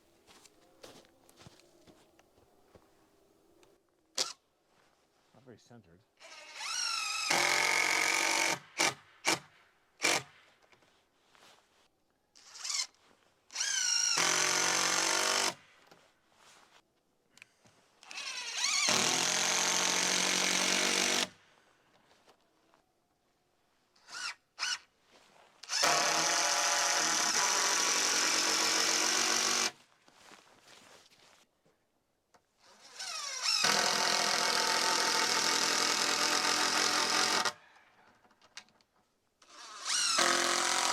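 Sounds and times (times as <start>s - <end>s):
power drill driving screws: 6.2s - 9.4s, 10.0s - 10.3s, 12.4s - 15.6s, 18.0s - 21.3s, 25.6s - 29.8s, 32.6s - 37.6s, 39.4s - 40.9s.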